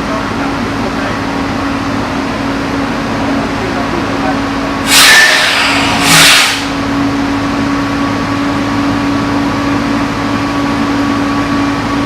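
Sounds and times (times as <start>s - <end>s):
drill rig engine hum: 0.0s - 12.0s
loud short hiss burst: 4.8s - 6.9s.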